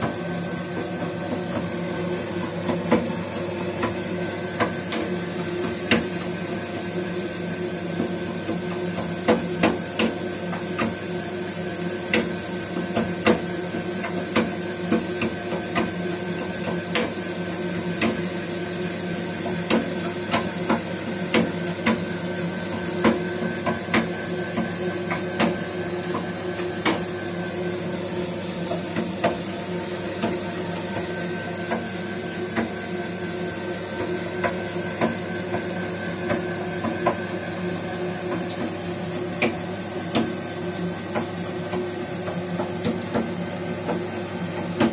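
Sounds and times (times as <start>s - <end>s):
gas boiler humming: 0.0s - 44.9s
sharp knocks in boiler: 4.6s - 6.2s, 8.0s - 10.2s, 12.1s - 13.5s, 19.6s - 22.0s, 23.0s - 26.2s.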